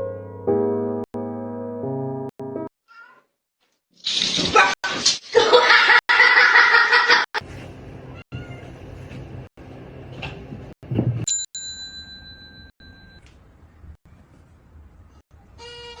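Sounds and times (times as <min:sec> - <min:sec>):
cat meowing: 0:02.9 - 0:03.3, 0:08.2 - 0:08.7
bell-like ding: 0:11.3 - 0:13.3.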